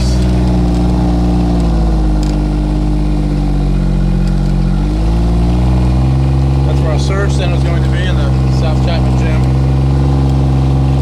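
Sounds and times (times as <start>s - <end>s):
utility vehicle engine running: 0.0s - 11.0s.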